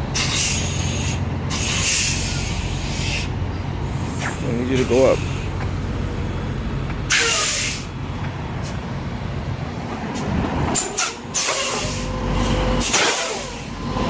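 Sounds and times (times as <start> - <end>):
diesel truck engine running: 0.0 - 14.0
air brake hisses: 0.2 - 5.6, 7.1 - 7.9, 10.8 - 13.8.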